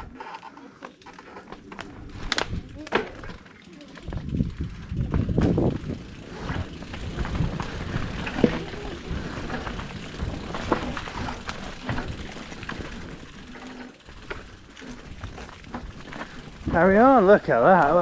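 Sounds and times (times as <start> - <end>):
bike rattling over bumps: 0.0 - 18.0
bike tyres rumbling on dirt: 0.0 - 18.0.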